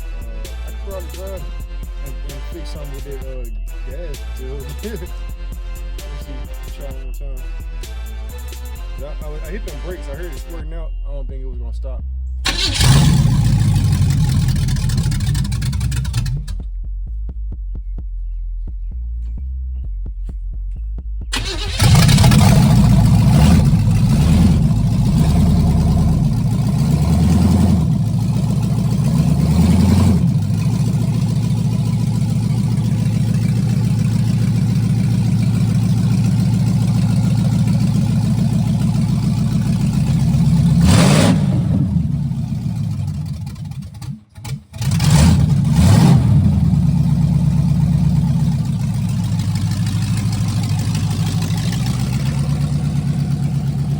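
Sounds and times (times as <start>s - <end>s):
car engine starting and revving: 12.5s - 16.6s, 21.3s - 53.9s.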